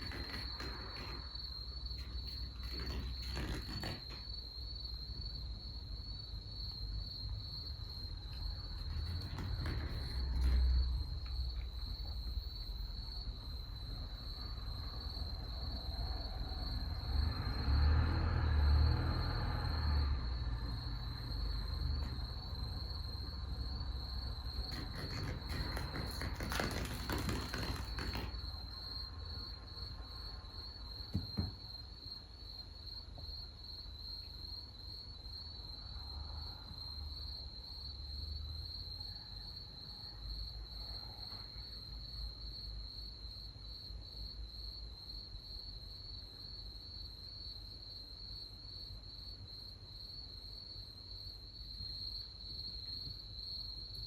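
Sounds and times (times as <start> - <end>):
rustling: 0.0 - 4.5, 8.7 - 11.9, 24.6 - 28.8
night insects trilling: 0.0 - 54.0.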